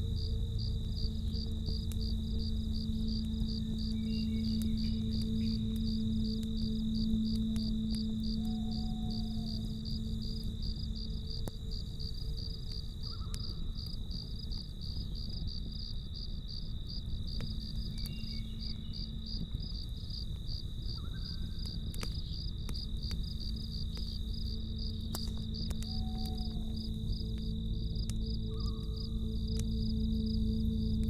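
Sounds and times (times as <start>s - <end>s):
campfire crackling: 0.0s - 31.0s
crickets chirping: 0.0s - 31.0s
low rumble and hum: 0.0s - 31.0s.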